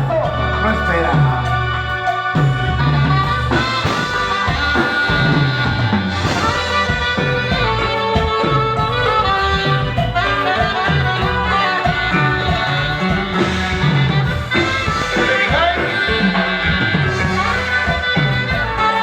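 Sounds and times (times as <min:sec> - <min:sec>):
live band playing dance song: 0:00.0 - 0:19.0.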